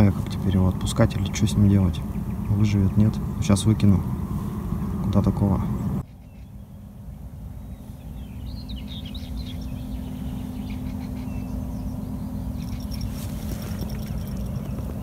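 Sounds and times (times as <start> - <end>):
low outdoor rumble: 0.0 - 15.0
small birds chirping: 0.0 - 15.0
fishing rod bite alarm bell jingling: 12.6 - 15.0.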